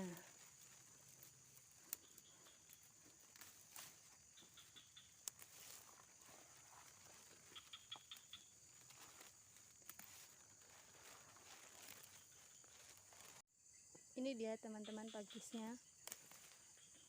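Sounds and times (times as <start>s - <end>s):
rustling of undergrowth: 0.0s - 13.4s, 15.2s - 17.0s.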